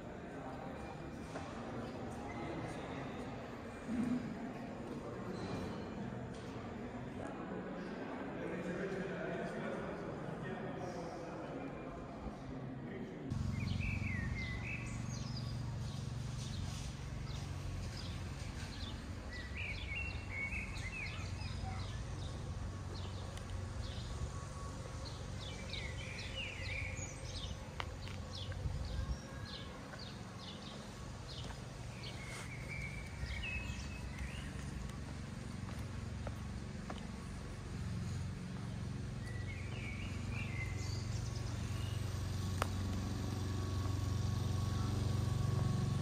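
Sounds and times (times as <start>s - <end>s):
birds singing: 13.3s - 46.0s
steady low rumble: 13.3s - 46.0s.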